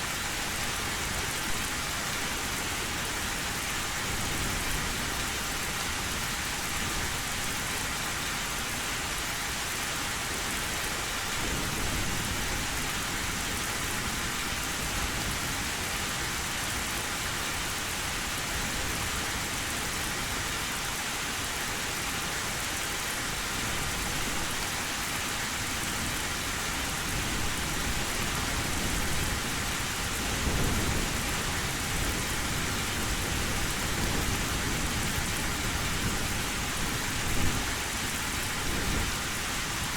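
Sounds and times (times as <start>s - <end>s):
heavy rain on a tin roof: 0.0s - 39.9s
low rumble of thunder: 26.1s - 39.9s.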